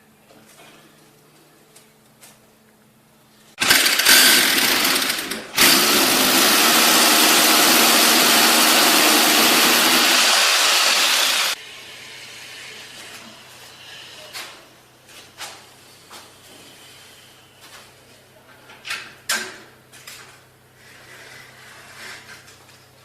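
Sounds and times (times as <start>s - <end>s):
electric power tool running: 3.6s - 11.6s.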